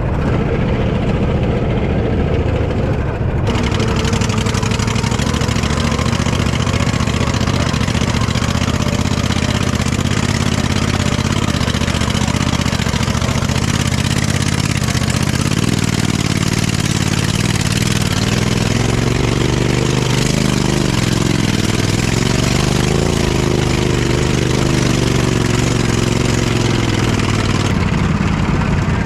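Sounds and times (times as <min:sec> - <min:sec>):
small engine running: 0:00.0 - 0:29.0.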